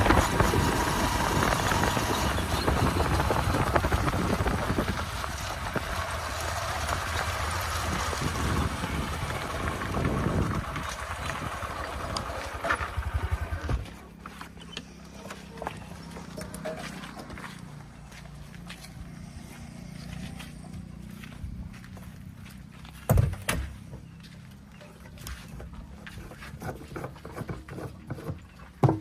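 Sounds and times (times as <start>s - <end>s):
tractor engine running: 0.0s - 29.0s
knocks and clatter: 26.3s - 29.0s.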